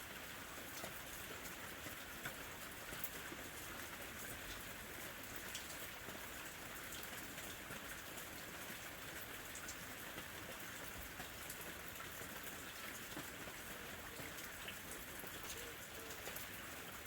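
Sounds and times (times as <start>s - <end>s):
gentle rain falling: 0.0s - 17.0s.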